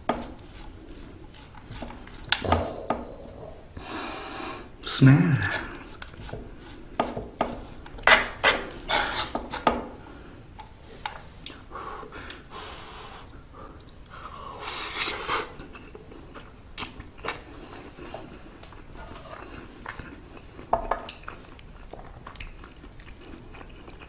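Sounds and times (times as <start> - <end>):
utensil scraping hot plate: 0.0 - 10.0.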